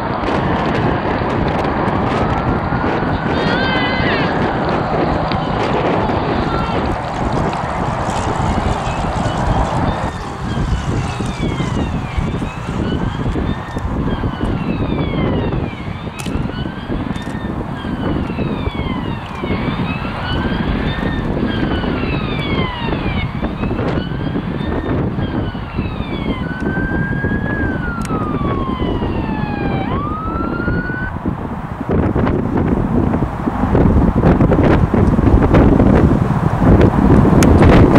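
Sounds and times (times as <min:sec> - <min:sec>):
emergency sirens wailing: 0:00.0 - 0:37.9
heavy low rumble: 0:00.0 - 0:37.9.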